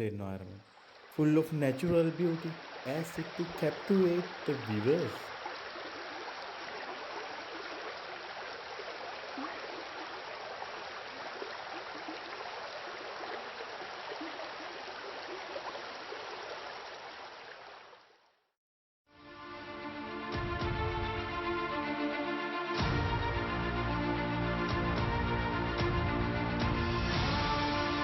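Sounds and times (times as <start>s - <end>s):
water rushing and splashing: 0.0s - 18.0s
music: 19.1s - 28.0s.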